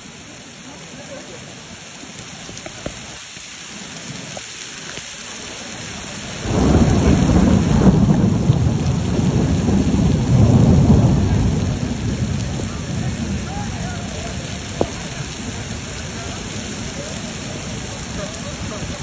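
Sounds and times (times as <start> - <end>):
heavy rain hissing: 0.0 - 19.0
deep rumbling storm noise: 6.3 - 19.0.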